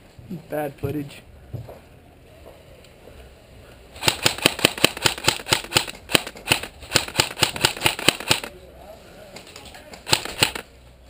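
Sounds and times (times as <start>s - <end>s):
airsoft gun rapid shots: 4.0s - 8.5s, 10.0s - 10.7s.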